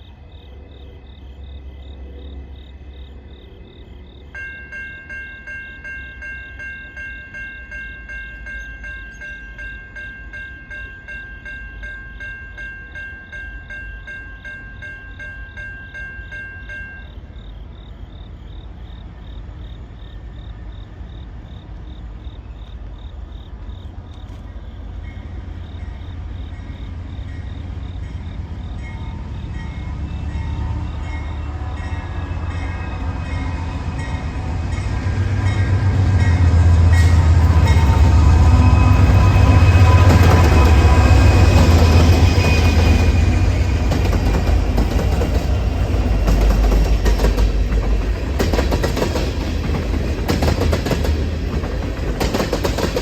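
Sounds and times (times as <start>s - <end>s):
freight train rumble: 0.0s - 53.0s
ringing bell: 4.4s - 17.2s.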